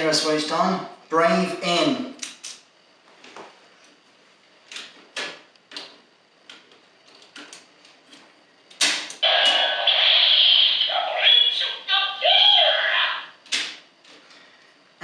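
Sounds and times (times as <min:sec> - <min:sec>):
toy electronic sound effect: 0:09.2 - 0:13.3.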